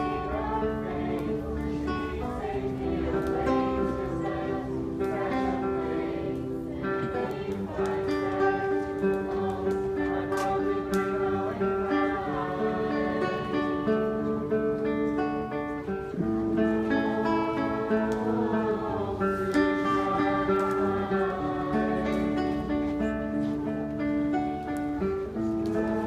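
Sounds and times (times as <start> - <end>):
acoustic guitar strumming chords: 0.0 - 26.0.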